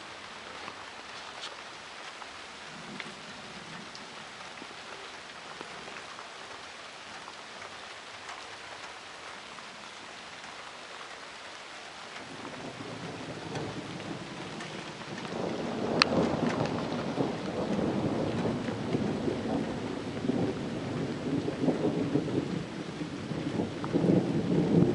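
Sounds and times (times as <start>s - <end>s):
rain falling: 0.0s - 24.9s
thunder rumble: 12.0s - 24.9s.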